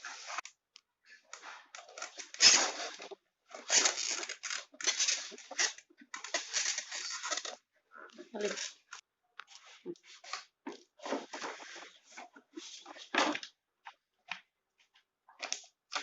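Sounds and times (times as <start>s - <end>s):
packaging crinkling and ripping: 1.4s - 7.6s.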